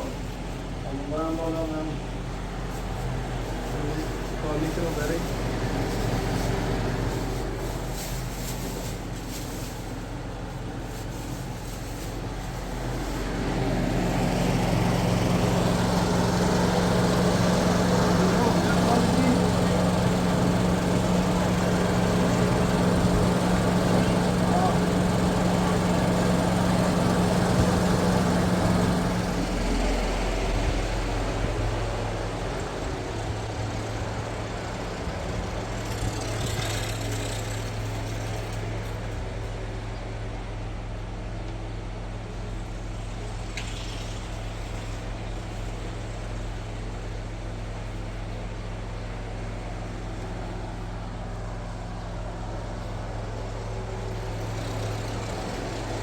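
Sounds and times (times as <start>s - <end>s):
motor humming: 13.6s - 32.8s.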